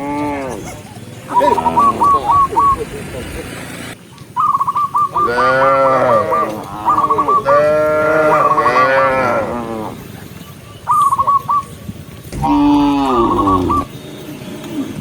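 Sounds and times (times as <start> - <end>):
cows mooing: 0.0 - 2.8, 5.1 - 10.0, 12.3 - 13.9.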